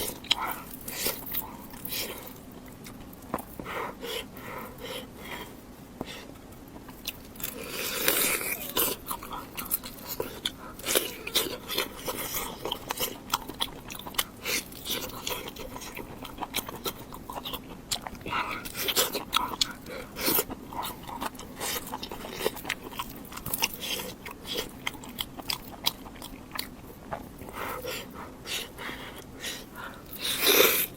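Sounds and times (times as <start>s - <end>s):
crunching and wet chewing: 0.0s - 30.9s.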